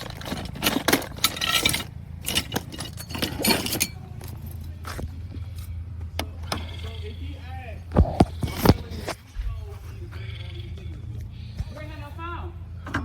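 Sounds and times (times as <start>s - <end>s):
metal tools clinking: 0.0s - 7.2s
steady low hum: 0.0s - 13.0s.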